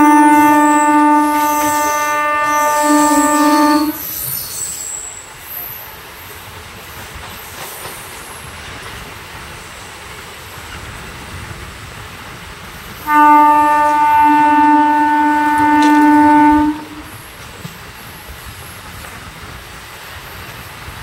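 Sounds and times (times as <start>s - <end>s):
train horn blast: 0.0s - 4.1s, 13.0s - 17.2s
train running on track: 0.0s - 21.0s.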